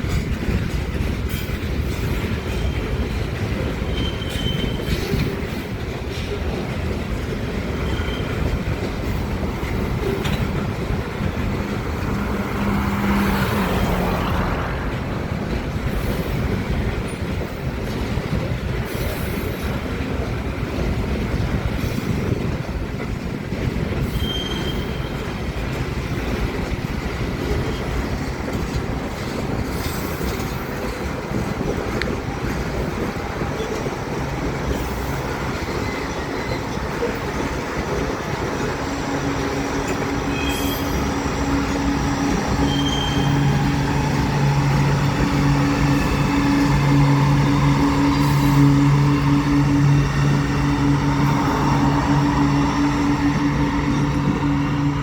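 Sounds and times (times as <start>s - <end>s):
freight train wheels rumbling: 0.0s - 55.0s
high wheel squeals: 3.8s - 5.5s, 7.7s - 10.7s, 24.0s - 25.3s, 34.6s - 55.0s.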